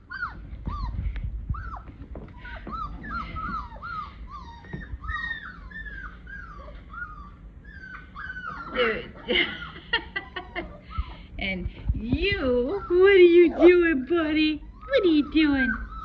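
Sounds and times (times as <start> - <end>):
puppies whimpering: 0.0 - 11.3, 12.0 - 16.0
low bumps: 0.2 - 6.2, 10.9 - 14.4.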